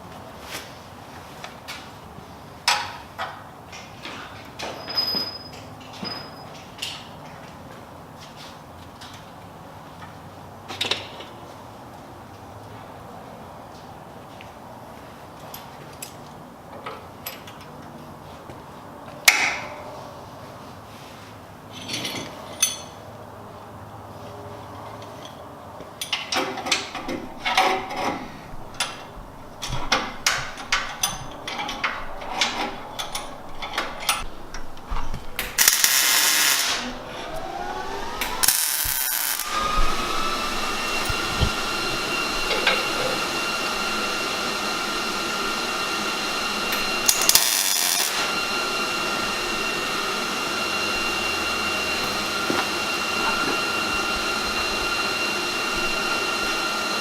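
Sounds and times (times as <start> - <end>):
power tool motor whine: 27.0 - 57.0.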